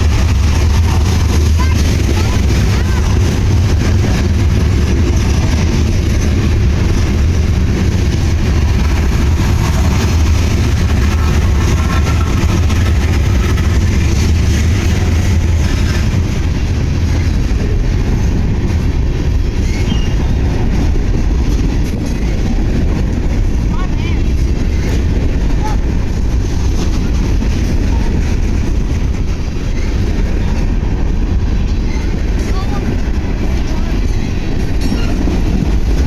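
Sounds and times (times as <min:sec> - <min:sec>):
train passing: 0:00.0 - 0:36.0.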